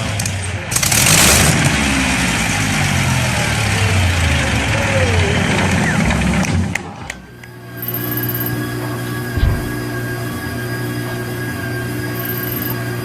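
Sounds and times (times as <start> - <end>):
large engine running: 0.0 - 6.8, 9.0 - 11.4.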